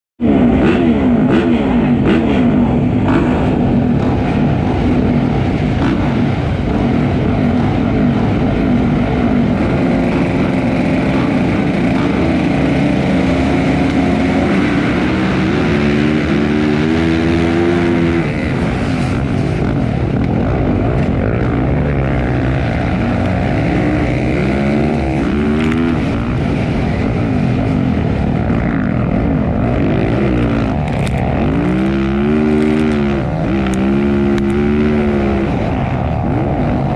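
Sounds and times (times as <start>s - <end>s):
motocross bike engines revving: 0.2s - 36.9s.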